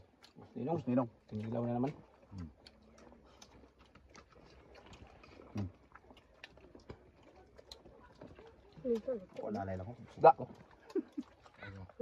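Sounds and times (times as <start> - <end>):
chewing with mouth smacks: 0.0 - 12.0.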